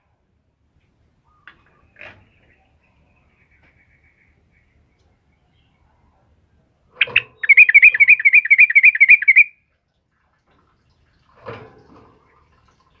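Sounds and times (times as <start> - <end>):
bulbul singing: 7.0 - 9.6.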